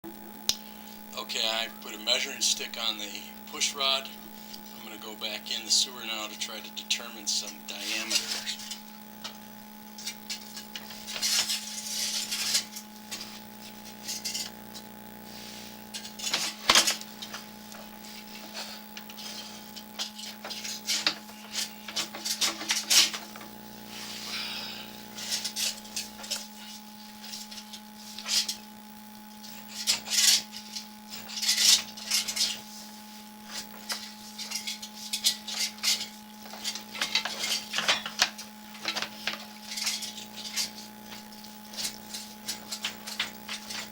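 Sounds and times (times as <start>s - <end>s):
steady hum: 0.0s - 43.9s
camera rod scraping inside drain pipe: 29.4s - 43.9s.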